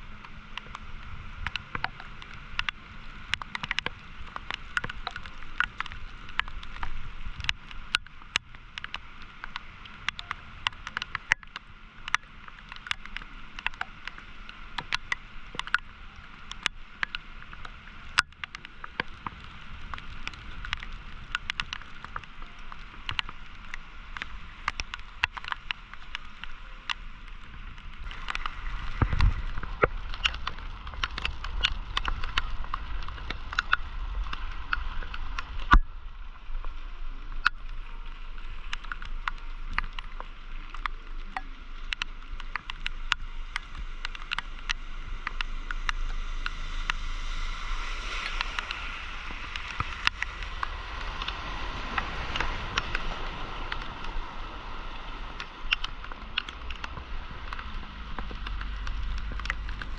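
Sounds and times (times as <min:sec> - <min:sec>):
sharp ticks: 0:01.4 - 0:27.0, 0:38.6 - 0:59.9
river rushing: 0:12.0 - 0:59.9
low rumble: 0:27.1 - 0:59.9.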